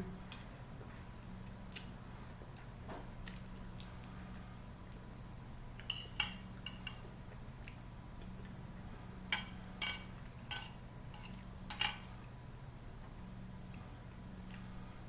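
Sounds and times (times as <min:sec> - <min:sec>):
cutlery clinking on bowl: 0:05.8 - 0:07.0, 0:09.3 - 0:12.1.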